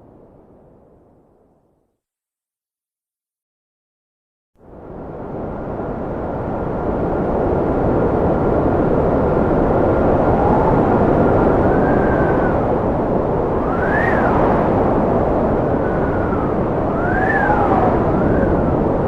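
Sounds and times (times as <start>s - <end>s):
strong wind whistling: 4.7s - 19.0s.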